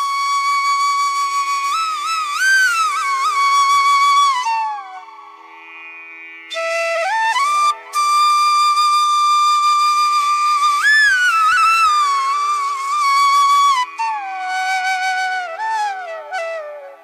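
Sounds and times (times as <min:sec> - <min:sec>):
solo flute melody: 0:00.0 - 0:05.8, 0:06.5 - 0:17.0
soft steady drone: 0:04.4 - 0:09.8.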